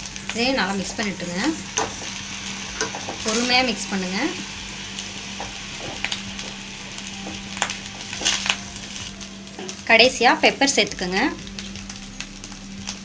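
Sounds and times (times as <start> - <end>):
rice sizzling in a pan: 0.0 - 13.0
spatula scraping a pan: 5.4 - 9.8.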